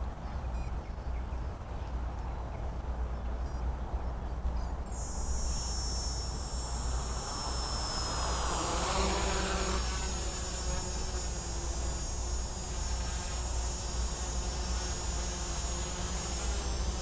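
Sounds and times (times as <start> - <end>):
drone motors whining: 4.9 - 17.0
propellers whirring: 4.9 - 17.0.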